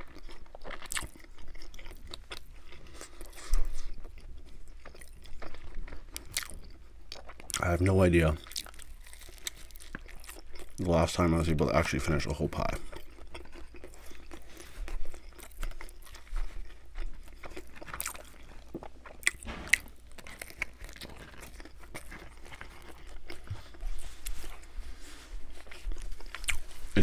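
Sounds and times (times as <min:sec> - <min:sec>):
crunching pizza crust: 0:00.0 - 0:27.0
crust cracking: 0:06.2 - 0:13.9, 0:17.3 - 0:23.8.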